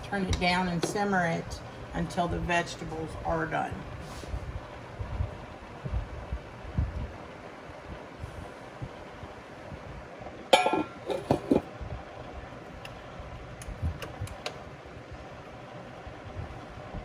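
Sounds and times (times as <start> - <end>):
metal lid clanking on pot: 10.5 - 11.7.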